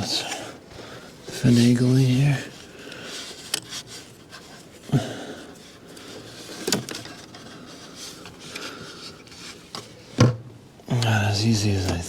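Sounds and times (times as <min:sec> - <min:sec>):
hoses rubbing and scraping: 0:01.1 - 0:10.1.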